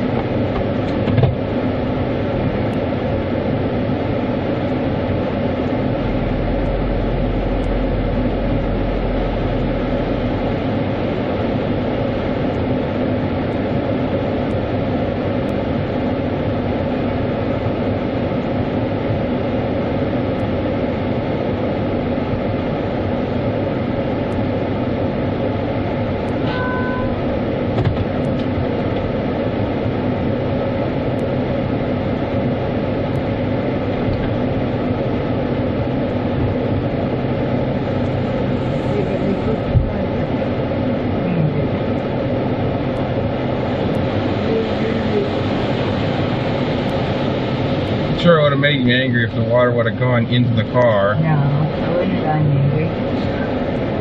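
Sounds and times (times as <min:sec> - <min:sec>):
car wash machinery humming: 0:00.0 - 0:54.0.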